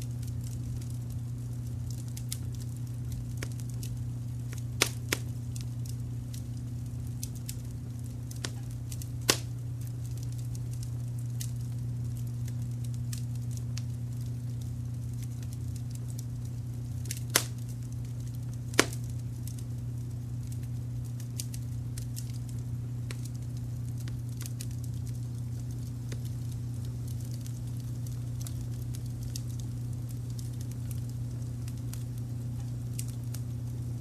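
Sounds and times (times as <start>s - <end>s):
steady low rumble: 0.0s - 34.0s
wood fire crackling: 0.0s - 34.0s
loud sharp pops: 9.3s - 9.5s, 17.3s - 17.6s, 18.7s - 19.1s.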